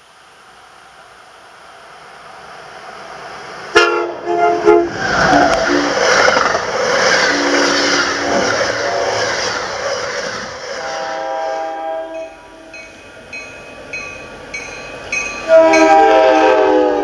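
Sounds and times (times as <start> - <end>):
passenger train passing at speed: 0.0 - 17.0
train horn blasts: 3.7 - 6.0, 7.2 - 9.3, 10.7 - 12.8, 15.4 - 17.0.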